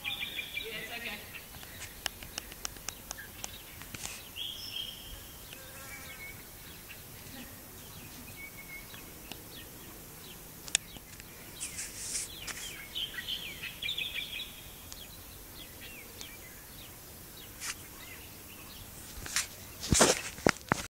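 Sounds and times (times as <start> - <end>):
birds chirping: 0.0 - 20.8
outdoor background noise: 0.0 - 20.9
sharp click: 1.6 - 4.2, 10.6 - 11.3.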